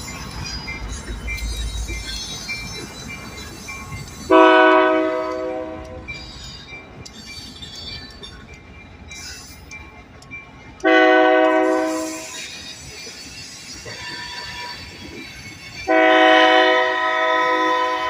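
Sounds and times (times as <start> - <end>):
rail yard rumble: 0.0 - 18.0
locomotive air horn blasts: 4.3 - 6.0, 10.8 - 12.3, 15.9 - 18.0.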